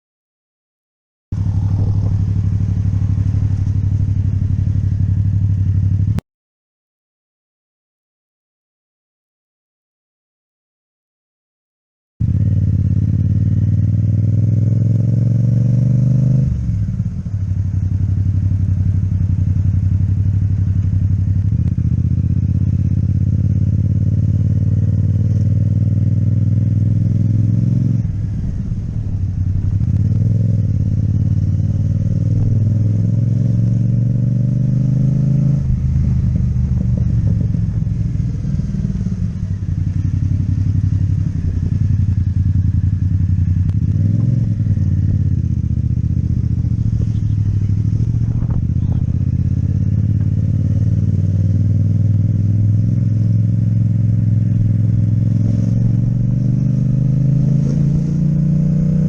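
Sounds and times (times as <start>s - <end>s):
motorcycle engine running: 1.3s - 6.2s, 12.2s - 59.0s.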